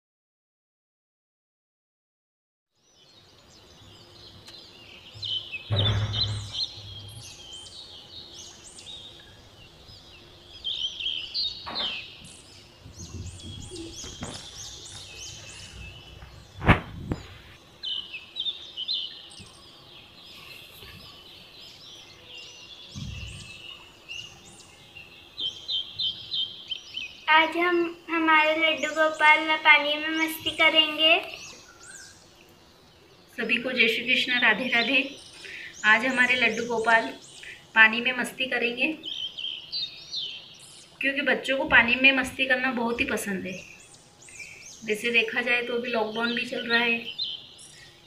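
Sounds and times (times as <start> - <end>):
small birds chirping: 2.7 - 48.0
dull knocks: 5.7 - 7.1, 11.6 - 12.1, 12.8 - 14.6, 22.9 - 23.6.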